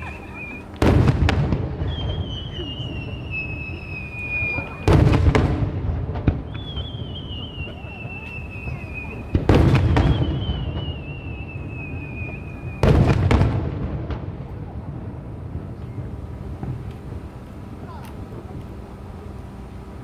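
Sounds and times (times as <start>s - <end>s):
thin falling whistle: 0.0s - 0.8s, 1.9s - 5.0s, 6.5s - 13.0s
fireworks booming: 0.0s - 17.8s
fireworks crackle: 0.0s - 20.0s.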